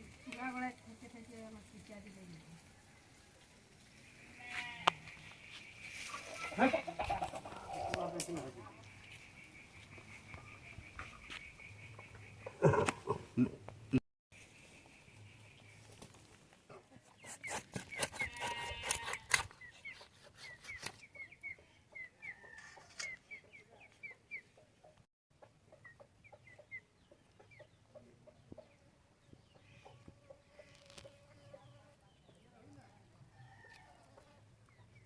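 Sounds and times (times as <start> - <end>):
chickens chirping: 5.0 - 13.7, 19.4 - 33.3.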